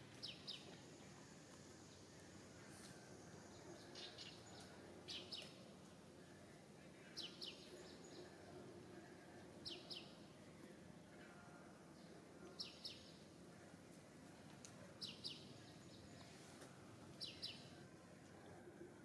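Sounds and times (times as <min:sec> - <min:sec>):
faint background noise: 0:00.0 - 0:19.0
bird chirping: 0:00.2 - 0:00.8, 0:03.4 - 0:05.6, 0:15.0 - 0:16.4, 0:17.2 - 0:17.8.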